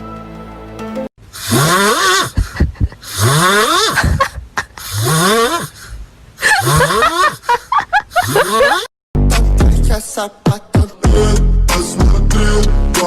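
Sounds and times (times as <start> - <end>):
animal calling rough rising cry: 1.4 - 2.5, 4.8 - 7.5.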